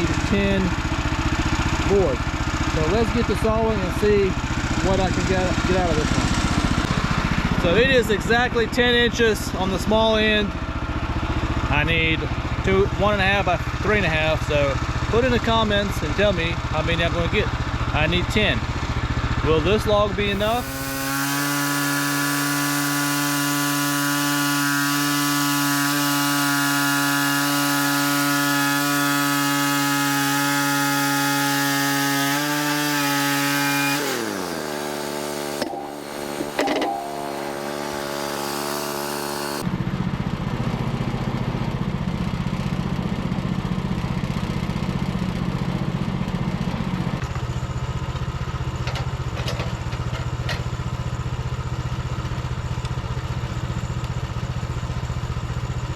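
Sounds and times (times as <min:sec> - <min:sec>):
rough engine idle: 0:00.0 - 0:21.1
sawmill gas engine running: 0:00.0 - 0:55.9
high hiss: 0:20.3 - 0:23.2.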